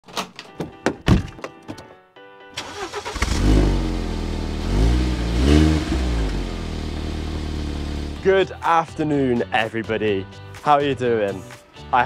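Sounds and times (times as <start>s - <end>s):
car engine starting and revving: 2.6s - 8.2s.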